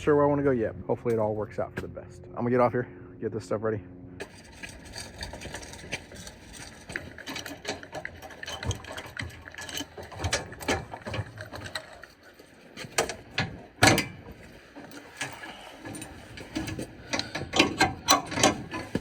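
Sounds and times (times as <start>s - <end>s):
gear clicking and rattling: 4.2s - 19.0s.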